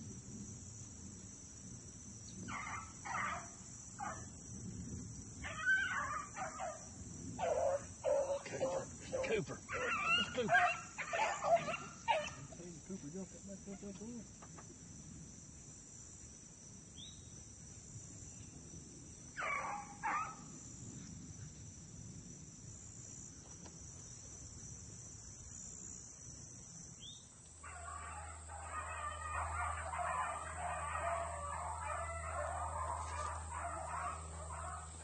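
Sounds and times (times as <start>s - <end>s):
high-pitched insect chorus: 0.0s - 35.0s
steady noise with low hum: 0.0s - 35.0s
dog barking: 2.5s - 4.2s, 7.4s - 12.6s, 19.4s - 20.4s, 27.6s - 35.0s.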